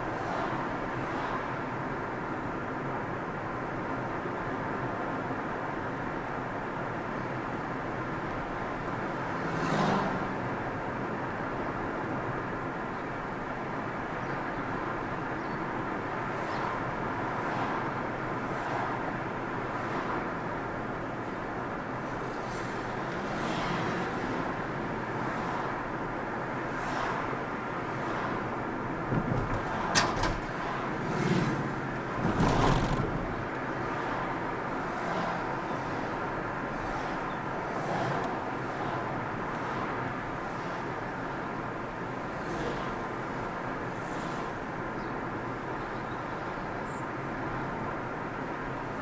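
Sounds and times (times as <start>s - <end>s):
car road noise: 14.8s - 49.0s.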